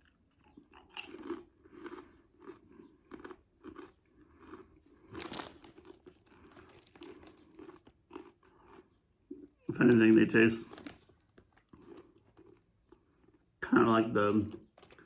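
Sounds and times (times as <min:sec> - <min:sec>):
chewing crunchy chips: 0:00.0 - 0:15.0.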